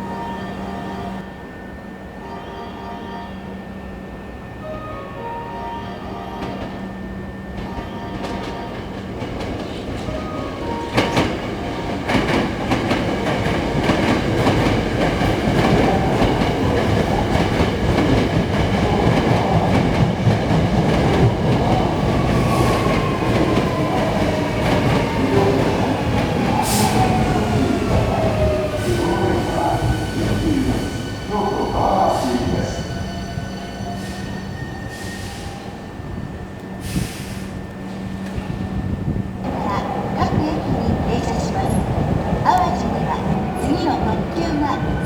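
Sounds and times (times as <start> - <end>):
train wheels clacking: 7.5 - 34.4.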